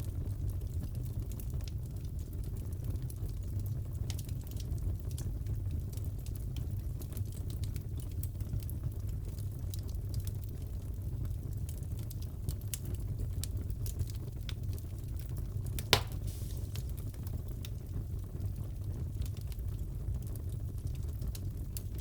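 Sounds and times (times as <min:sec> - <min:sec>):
fireplace crackling: 0:11.2 - 0:19.7, 0:20.3 - 0:22.0.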